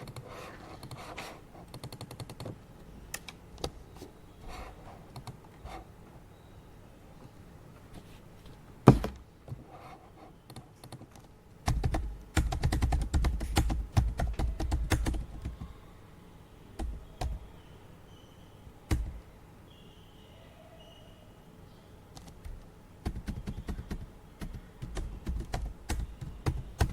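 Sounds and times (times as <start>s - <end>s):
typing on computer keyboard: 0.0s - 1.0s, 1.6s - 2.6s, 10.5s - 15.7s, 16.8s - 17.4s, 22.2s - 26.9s.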